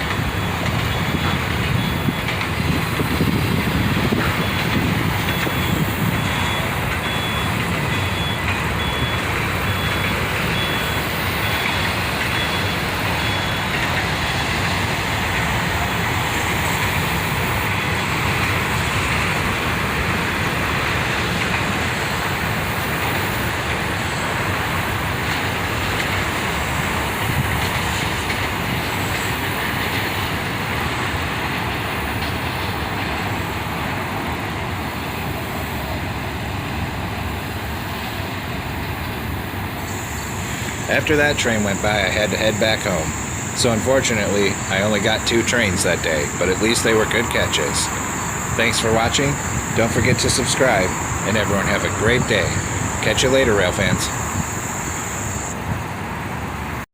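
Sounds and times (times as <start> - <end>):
freight train wheels rumbling on rail: 0.0 - 56.9.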